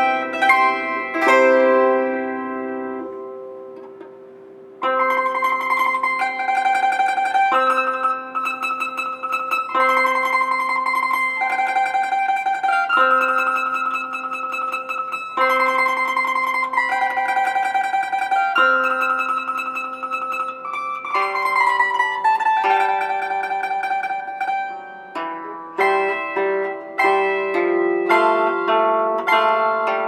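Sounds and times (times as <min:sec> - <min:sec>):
plucked mandolin folk melody: 0:00.0 - 0:30.0.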